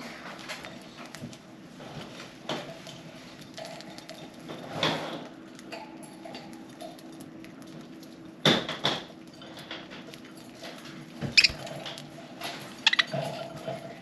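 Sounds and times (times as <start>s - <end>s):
birds cracking seeds: 6.4s - 13.3s.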